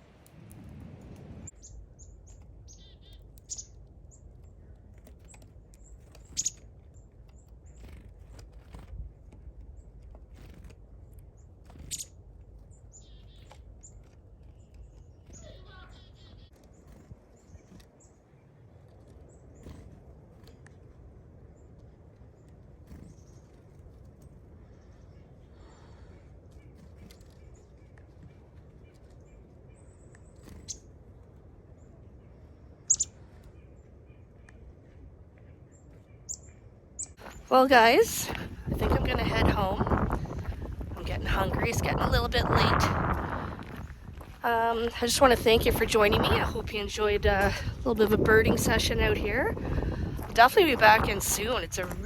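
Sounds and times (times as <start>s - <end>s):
wind rumble on microphone: 0.0s - 2.9s, 37.2s - 52.0s
songbirds chirping: 0.0s - 52.0s
buzzy falling bird call: 32.9s - 33.1s.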